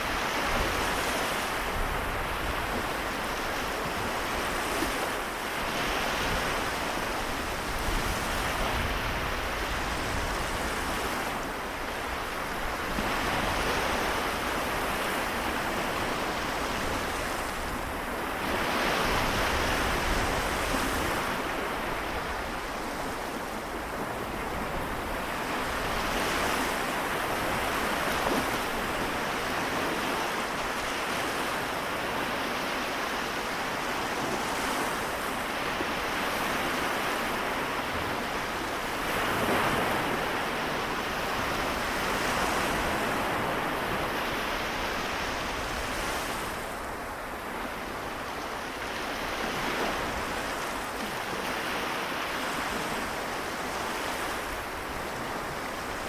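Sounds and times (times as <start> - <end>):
small waves washing onto shore: 0.0 - 56.0
wind on microphone: 0.0 - 56.0.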